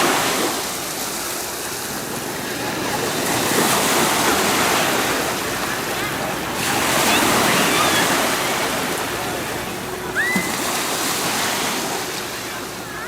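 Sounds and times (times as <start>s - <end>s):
waves washing onto beach: 0.0s - 13.0s.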